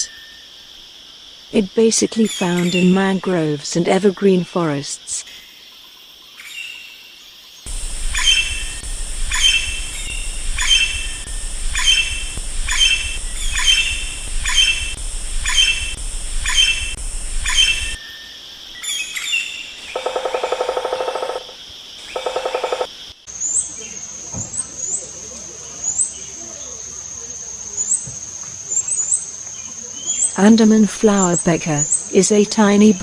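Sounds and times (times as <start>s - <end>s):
high insect drone: 7.0s - 30.6s
fast buzzing rattle: 7.7s - 18.0s, 19.8s - 23.0s
woodpecker calling: 7.7s - 18.0s, 19.8s - 23.0s.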